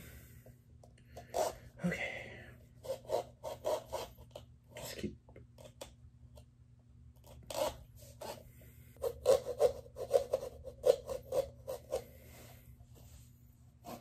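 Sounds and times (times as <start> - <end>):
saw rasping through pumpkin: 2.8 - 4.4, 7.3 - 12.3, 13.8 - 14.0.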